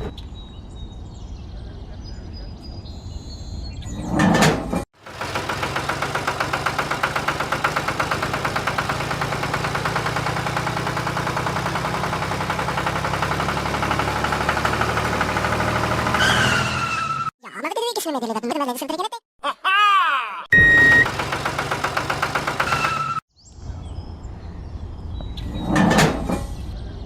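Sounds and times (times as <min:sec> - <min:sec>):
engine chugging: 0:05.0 - 0:16.4, 0:20.6 - 0:23.2.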